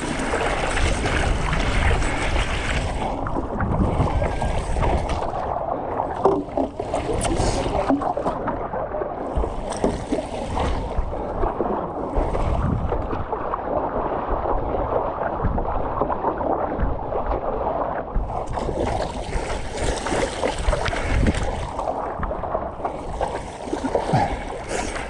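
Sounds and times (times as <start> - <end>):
wind buffeting microphone: 0.0 - 13.5, 14.3 - 25.0
water sloshing and splashing: 0.0 - 25.0.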